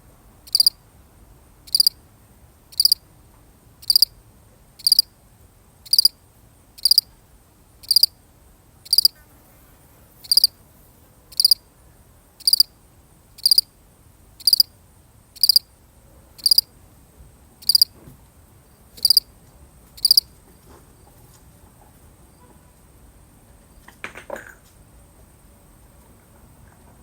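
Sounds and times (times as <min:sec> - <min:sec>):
cricket chirping: 0:00.4 - 0:00.8, 0:01.6 - 0:02.0, 0:02.7 - 0:03.1, 0:03.8 - 0:04.2, 0:04.8 - 0:05.2, 0:05.8 - 0:07.2, 0:07.8 - 0:08.2, 0:08.8 - 0:09.2, 0:10.2 - 0:10.6, 0:11.3 - 0:11.7, 0:12.4 - 0:15.8, 0:16.4 - 0:16.8, 0:17.6 - 0:18.0, 0:18.6 - 0:19.3, 0:20.0 - 0:20.3
faint clatter: 0:23.8 - 0:24.8.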